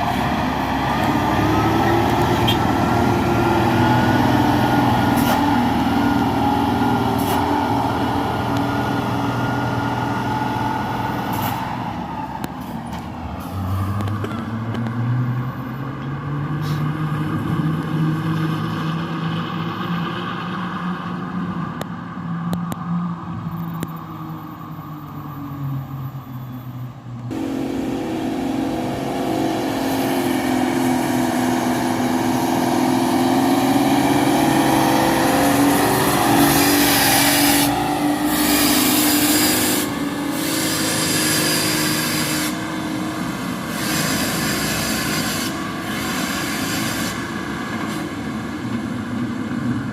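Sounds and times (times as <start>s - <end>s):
dump truck engines droning: 0.0s - 49.9s.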